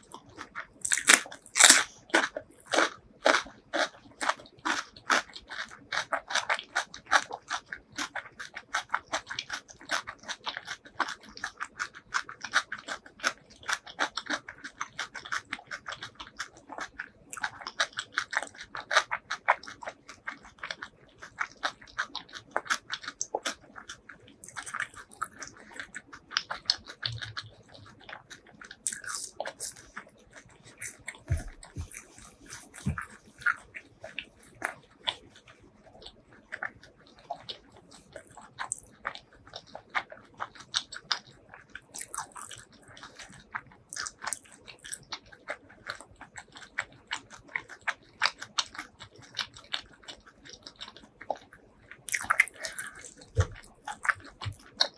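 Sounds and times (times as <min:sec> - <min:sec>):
person chewing and crunching food: 0:00.0 - 0:54.9.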